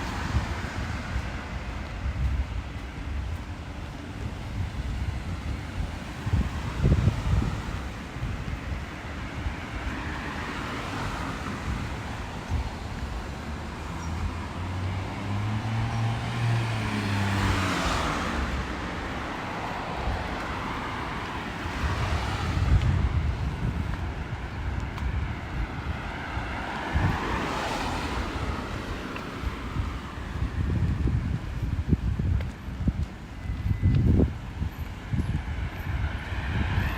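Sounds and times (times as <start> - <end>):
tyres hissing on wet road: 9.8 - 23.2
car engine passing: 13.9 - 23.2.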